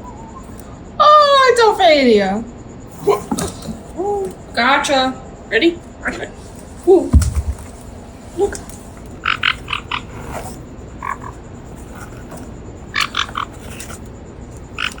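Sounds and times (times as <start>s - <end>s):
parrot croaking clicks: 8.6s - 10.1s, 11.0s - 14.0s, 14.6s - 15.0s.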